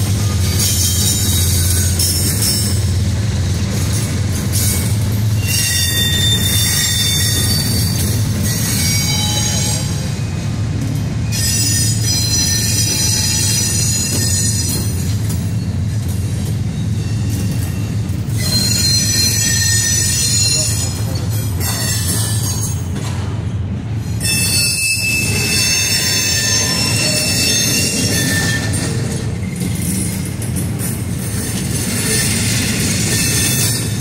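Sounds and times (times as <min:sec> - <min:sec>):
train wheels rumbling on rail: 0:00.0 - 0:34.0
high-pitched wheel squeal: 0:04.6 - 0:10.4, 0:11.2 - 0:15.8, 0:16.7 - 0:22.8, 0:24.1 - 0:29.6, 0:31.8 - 0:34.0.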